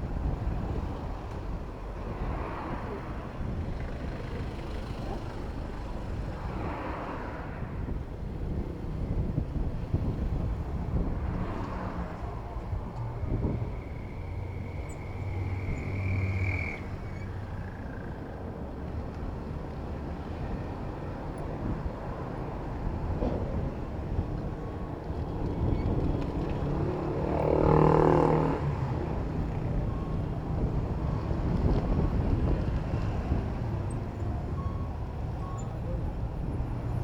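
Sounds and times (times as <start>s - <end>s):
road traffic rumble: 0.0s - 37.0s
vehicle passing close: 26.0s - 33.8s.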